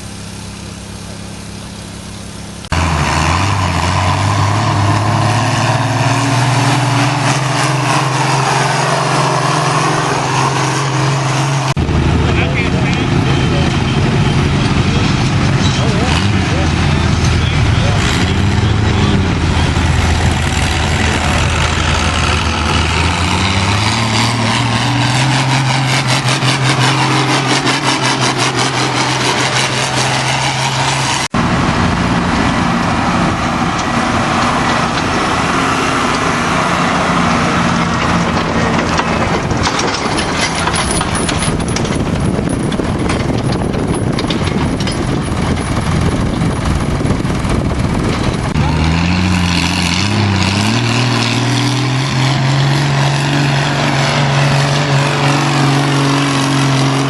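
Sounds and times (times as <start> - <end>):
tractor engine under load: 0.0 - 57.0.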